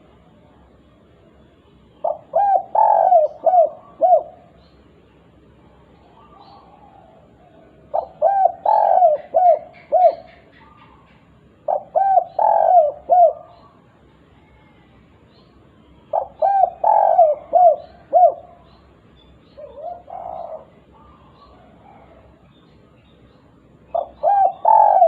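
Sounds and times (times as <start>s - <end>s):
dove cooing: 2.0s - 4.6s, 6.0s - 13.8s, 16.1s - 18.8s, 19.6s - 22.4s, 23.9s - 25.0s.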